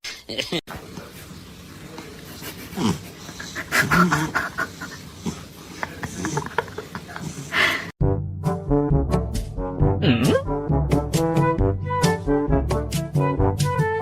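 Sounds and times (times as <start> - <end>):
brass music: 8.0 - 14.0.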